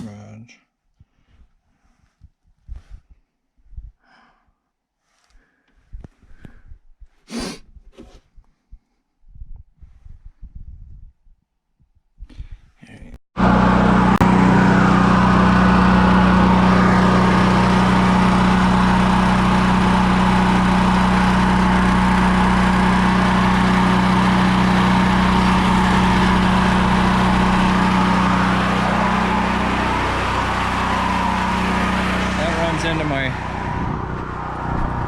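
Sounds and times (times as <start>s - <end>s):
generator engine running: 13.4s - 35.0s.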